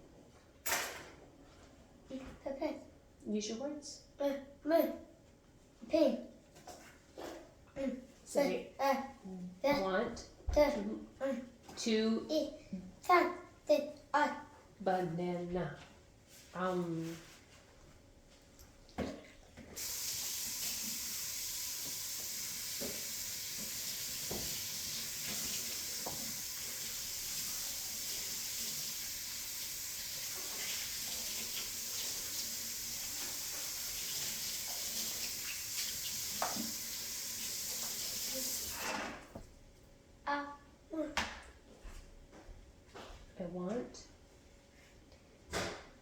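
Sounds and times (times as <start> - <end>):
tap water running into sink: 19.8 - 39.0.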